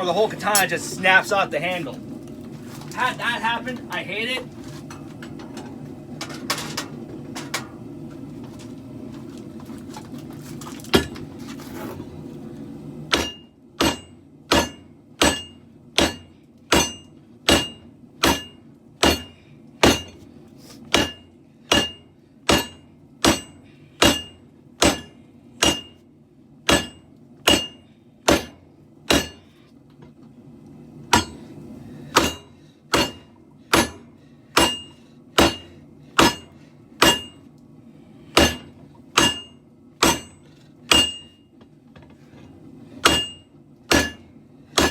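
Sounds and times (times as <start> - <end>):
forge burner rumbling: 0.0 - 44.9
hammer ringing on anvil: 13.1 - 20.2, 21.0 - 26.0, 26.7 - 29.4, 32.2 - 33.2, 33.8 - 34.0, 34.6 - 37.4, 38.4 - 41.4, 43.0 - 44.2.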